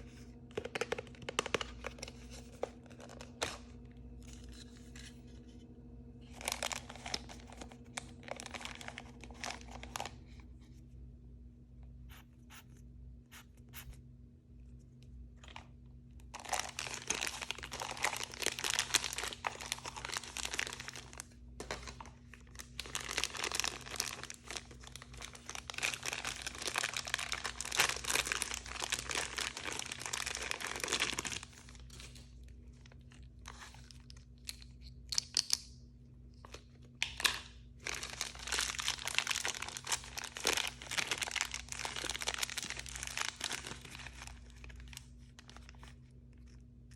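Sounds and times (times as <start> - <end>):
plastic packaging crinkling: 0.0 - 5.6, 6.2 - 10.5, 15.4 - 35.4, 36.4 - 46.9
faint low hum: 0.0 - 46.9.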